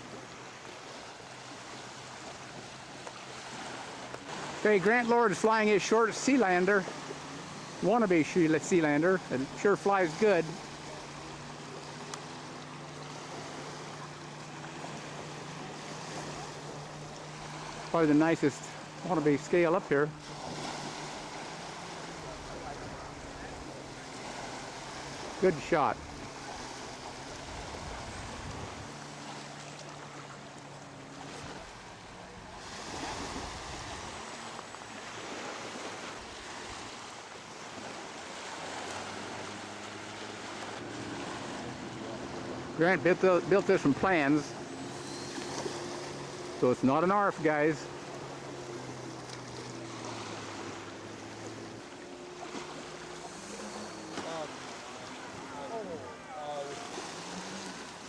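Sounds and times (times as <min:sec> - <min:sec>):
wind hiss: 0:00.0 - 0:55.4
model plane engine: 0:00.0 - 0:58.0
wind noise on microphone: 0:26.0 - 0:29.0.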